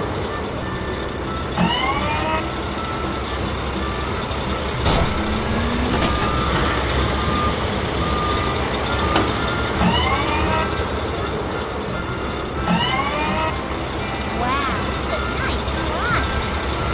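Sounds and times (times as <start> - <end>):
reversing beeper: 0.0 - 13.8
hydraulic whine: 0.0 - 15.4
heavy engine running: 0.0 - 16.9
sharp clunk: 4.8 - 6.4.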